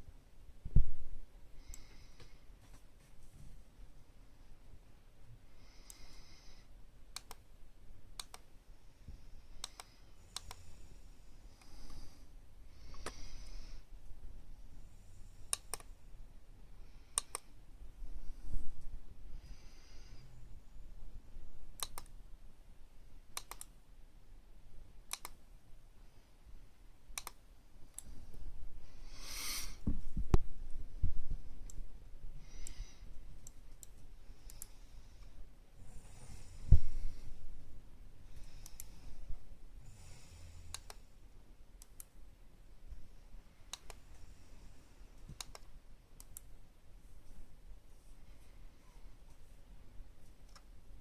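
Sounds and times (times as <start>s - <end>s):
faint low hum: 0.0s - 51.0s
sharp clicks: 7.1s - 7.4s, 8.2s - 8.5s, 9.6s - 10.6s, 15.5s - 15.9s, 17.2s - 17.5s, 21.8s - 22.2s, 23.4s - 23.8s, 25.1s - 25.4s, 27.2s - 28.1s, 32.5s - 34.8s, 38.4s - 39.0s, 40.7s - 41.0s, 41.8s - 42.2s, 43.7s - 44.0s, 45.3s - 46.5s.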